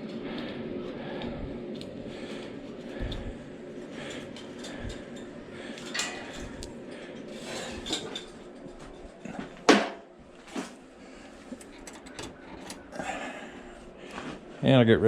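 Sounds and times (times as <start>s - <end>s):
metal parts clinking: 5.8s - 6.6s.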